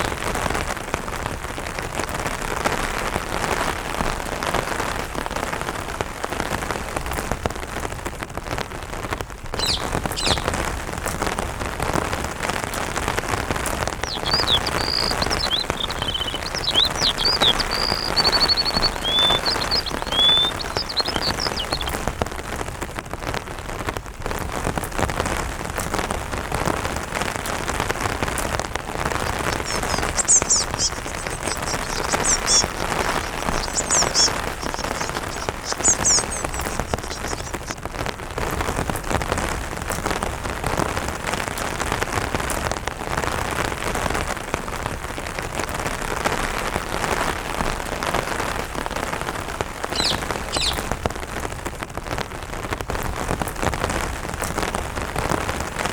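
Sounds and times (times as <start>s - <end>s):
rain pattering on umbrella: 0.0s - 55.9s
high thin bird chirps: 9.6s - 10.6s, 13.9s - 22.1s, 29.0s - 37.8s, 49.9s - 50.9s.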